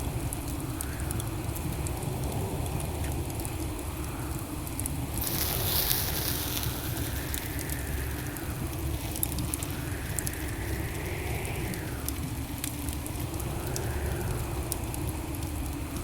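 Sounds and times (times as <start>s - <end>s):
fire rumbling: 1.0s - 16.0s
fire crackling: 4.5s - 16.0s
fire hissing: 4.9s - 16.0s.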